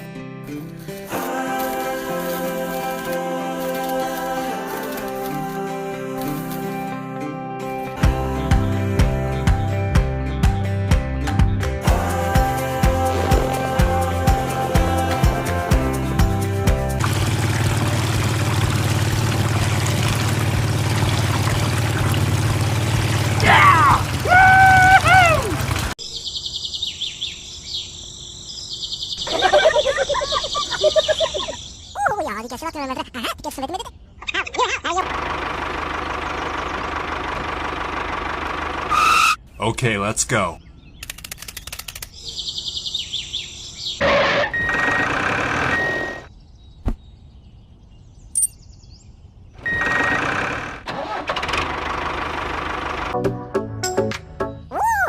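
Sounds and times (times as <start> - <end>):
loud engine noise: 16.9 - 26.0, 35.0 - 39.4, 44.0 - 46.3, 49.6 - 53.2
birds chirping: 20.9 - 35.1, 38.9 - 50.2
high chirping: 26.0 - 32.4, 42.1 - 44.0, 46.1 - 49.8
sharp click: 41.0 - 42.2.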